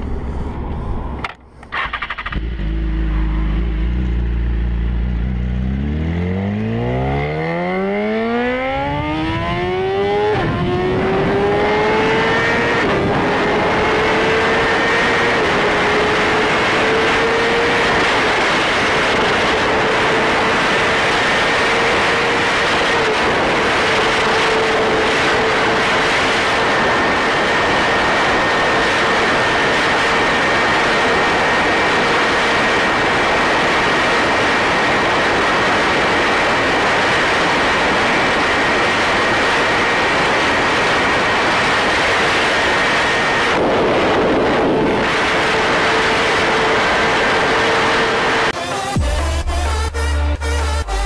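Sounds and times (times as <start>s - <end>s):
engine running steadily: 0.0s - 51.0s.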